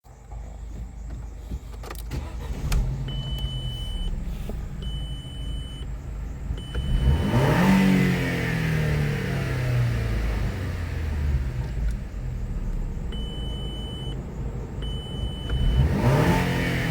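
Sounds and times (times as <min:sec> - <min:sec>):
car engine starting and revving: 0:00.4 - 0:16.9
electronic beeps: 0:03.0 - 0:04.2, 0:04.8 - 0:05.9, 0:06.6 - 0:07.8, 0:13.1 - 0:14.2, 0:14.8 - 0:16.7.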